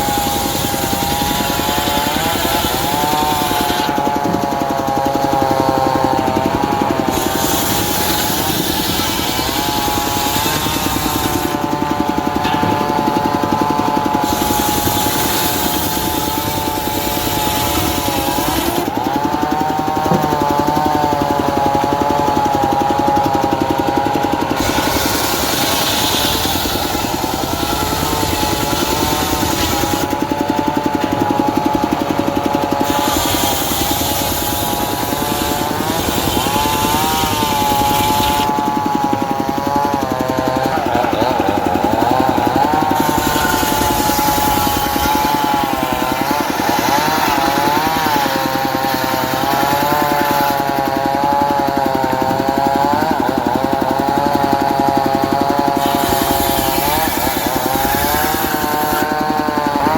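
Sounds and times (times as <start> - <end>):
circular saw whine: 0.0 - 50.6
diesel engine chugging: 4.0 - 50.2.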